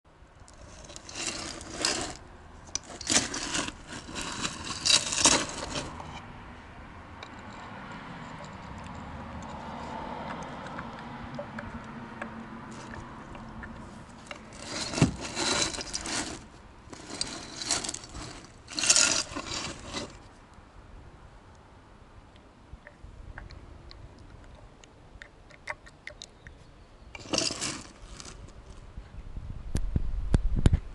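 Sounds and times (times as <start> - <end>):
turbo scraping and rattling: 0.4 - 6.3, 7.2 - 11.0, 12.2 - 20.4, 27.2 - 28.8.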